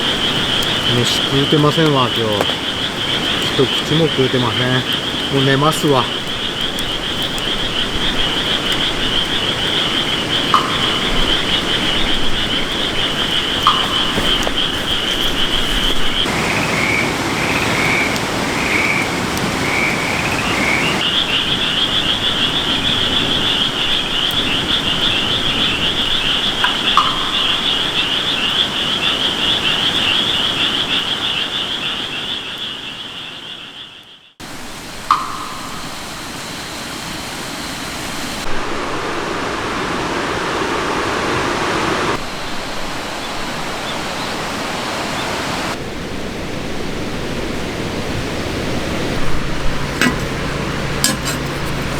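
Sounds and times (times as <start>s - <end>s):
lower frog call bursts: 0.0s - 37.2s
frogs trilling: 0.0s - 45.8s, 47.2s - 51.9s.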